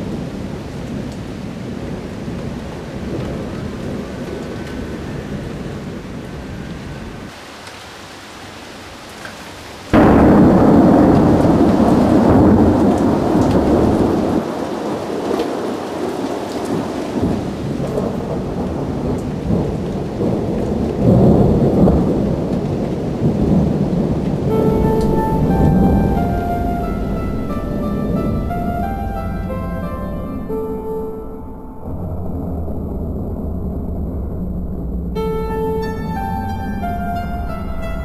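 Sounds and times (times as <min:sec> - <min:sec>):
rain hissing: 0:06.5 - 0:38.0
thunderclap and rumble: 0:10.0 - 0:37.8
faint music: 0:24.5 - 0:33.6, 0:35.2 - 0:38.0.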